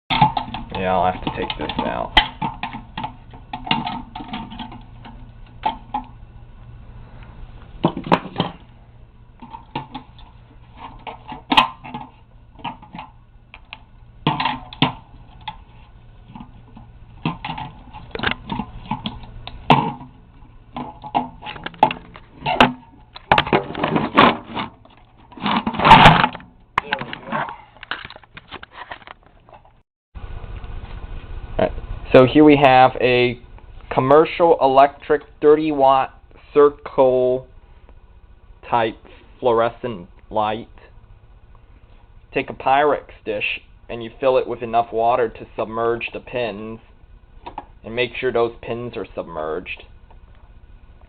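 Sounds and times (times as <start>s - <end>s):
objects knocking and clattering: 0.1s - 6.2s, 7.8s - 8.7s, 9.4s - 29.8s
faint low hum: 0.1s - 51.0s.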